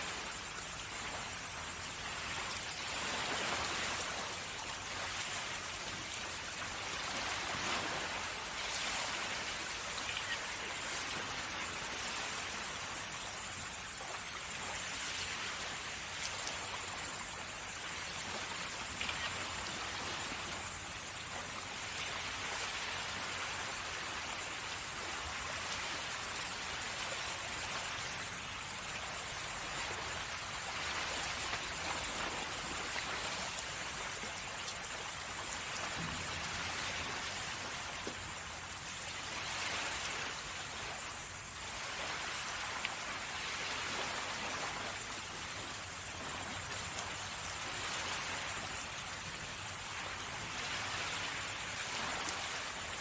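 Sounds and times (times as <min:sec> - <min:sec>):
high-pitched hiss: 0:00.0 - 0:53.0
sea waves washing onto shore: 0:00.0 - 0:53.0.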